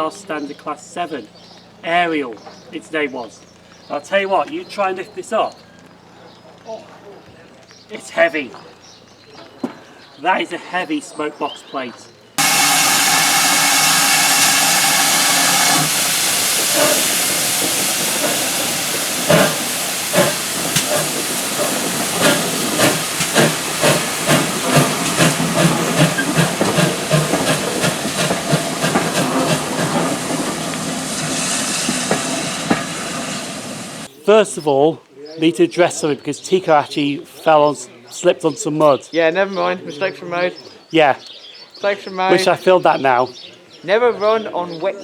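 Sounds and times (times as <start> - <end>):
steam locomotive whistle: 12.4 - 21.4
locomotive exhaust beats: 12.4 - 34.1
steam hissing: 12.4 - 34.1.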